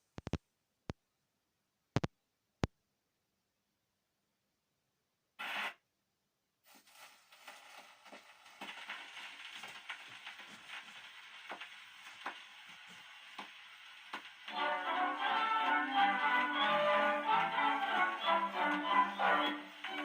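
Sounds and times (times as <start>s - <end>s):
record surface hiss and crackle: 0.0s - 2.9s, 5.4s - 5.8s, 6.6s - 20.0s
sharp record clicks: 7.4s - 20.0s.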